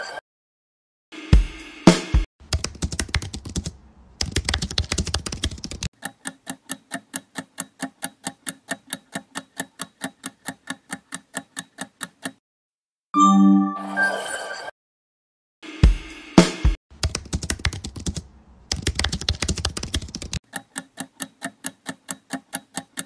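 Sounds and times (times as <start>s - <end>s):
keyboard typing clicks: 2.6s - 12.4s, 17.0s - 23.0s
timer ticking: 6.0s - 12.4s, 20.5s - 23.0s.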